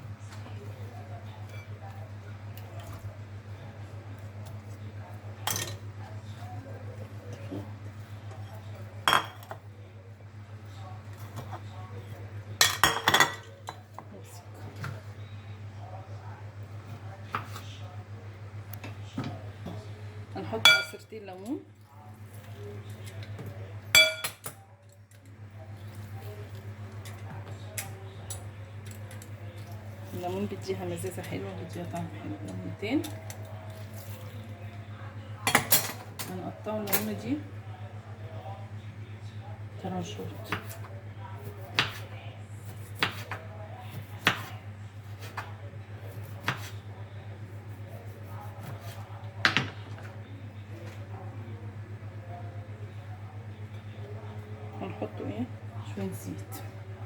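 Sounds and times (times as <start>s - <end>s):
utensil clinking on a dish: 1.4s - 3.1s, 5.4s - 6.2s, 8.3s - 9.7s, 11.1s - 14.1s, 20.5s - 21.6s, 22.2s - 34.7s, 35.4s - 37.3s.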